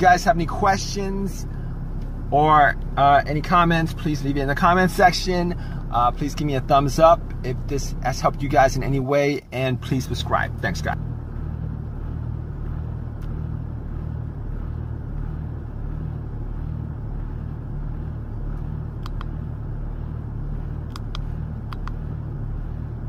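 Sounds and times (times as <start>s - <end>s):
car engine running: 0.0s - 23.0s
light clicks: 19.0s - 19.3s, 20.9s - 22.0s.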